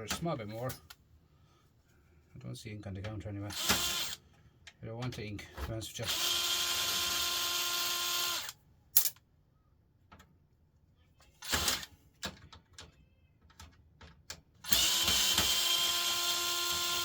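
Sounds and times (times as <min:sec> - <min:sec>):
power drill whining: 0:03.6 - 0:04.2, 0:06.1 - 0:08.6, 0:14.7 - 0:17.0.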